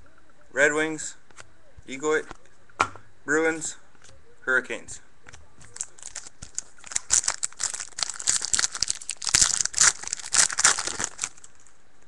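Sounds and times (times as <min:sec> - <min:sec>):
trading cards rustling and clicking: 0:05.6 - 0:11.7.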